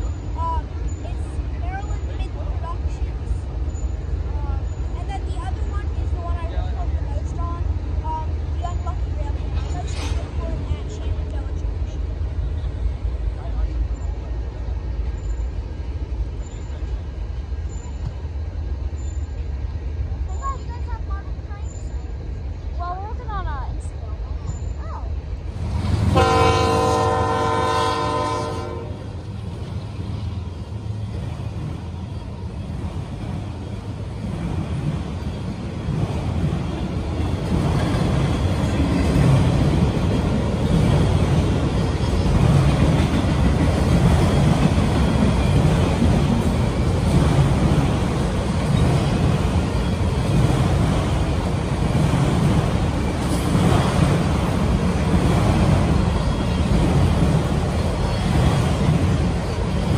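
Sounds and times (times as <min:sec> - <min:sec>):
freight train rolling past: 0:00.0 - 0:59.9
locomotive air horn blast: 0:26.1 - 0:29.2.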